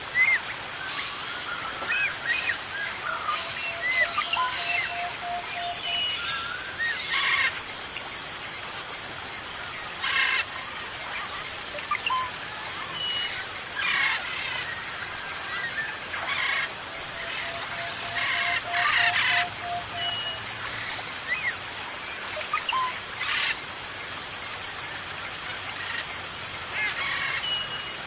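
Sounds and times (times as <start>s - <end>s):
small birds chirping and whistling: 10.0s - 24.1s.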